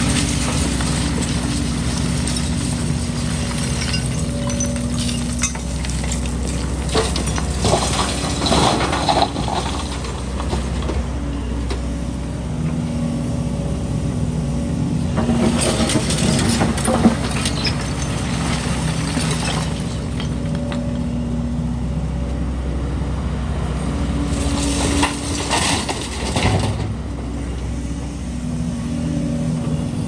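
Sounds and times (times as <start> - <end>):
bucket scraping concrete rubble: 0.0 - 11.0, 24.4 - 27.0
excavator diesel engine: 0.0 - 30.0.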